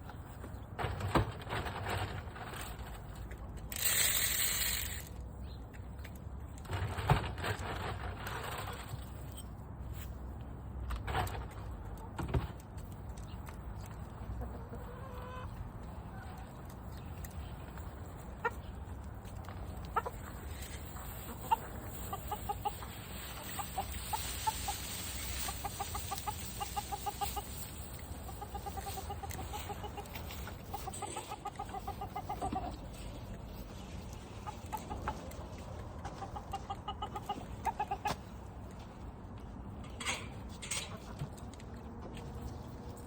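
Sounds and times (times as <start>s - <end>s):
chickens clucking: 12.9s - 38.7s, 40.4s - 42.9s.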